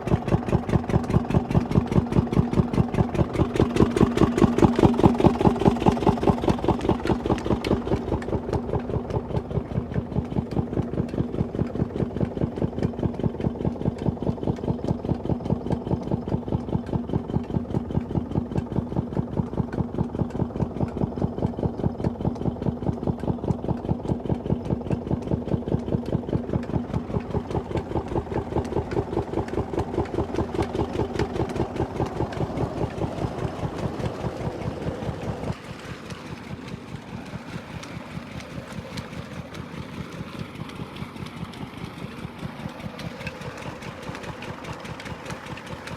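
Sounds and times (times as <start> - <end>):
water pump engine chugging: 0.0 - 45.9.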